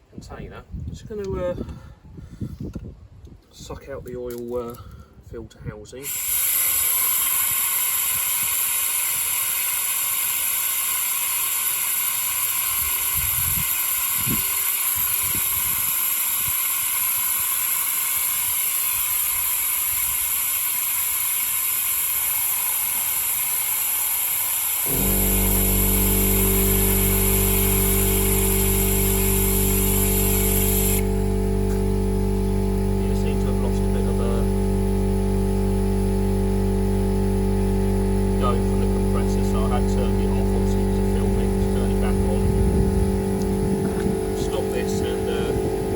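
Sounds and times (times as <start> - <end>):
oil extractor hissing: 6.0 - 45.9
loud low hum: 24.7 - 45.9.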